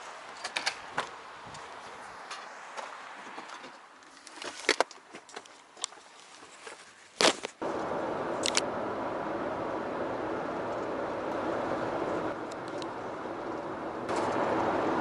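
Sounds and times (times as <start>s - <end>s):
vehicle running: 7.6s - 15.0s.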